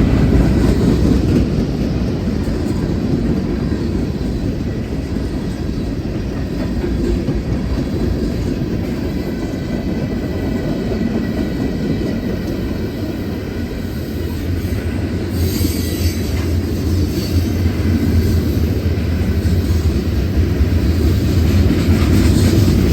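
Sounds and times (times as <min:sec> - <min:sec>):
train wheels clacking: 0:00.0 - 0:22.9
hiss: 0:13.8 - 0:17.6.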